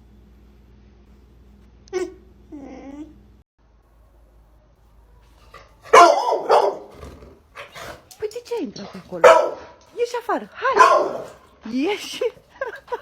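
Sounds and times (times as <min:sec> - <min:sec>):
dog barking: 0:05.1 - 0:08.0, 0:09.2 - 0:09.8, 0:10.6 - 0:11.4.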